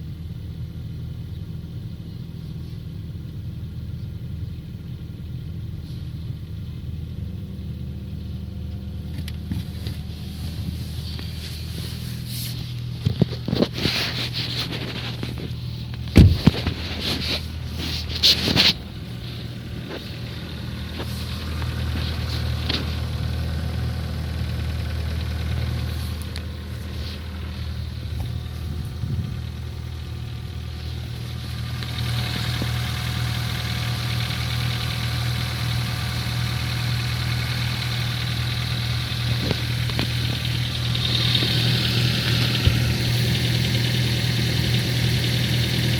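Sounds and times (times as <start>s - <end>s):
car engine idling: 0.0s - 45.9s
engine knocking: 12.9s - 45.9s.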